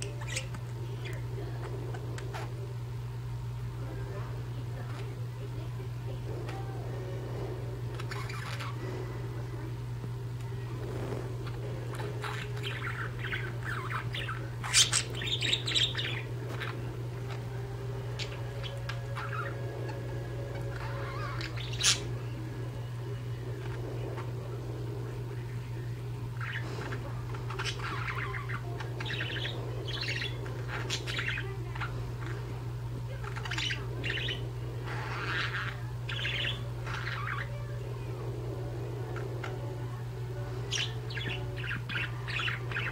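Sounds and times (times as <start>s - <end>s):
budgerigars chirping and chattering: 0.0s - 2.7s, 6.4s - 9.7s, 10.8s - 42.9s
steady low hum: 0.0s - 42.9s
sharp bird calls: 12.1s - 17.4s, 26.4s - 31.6s, 33.3s - 37.6s.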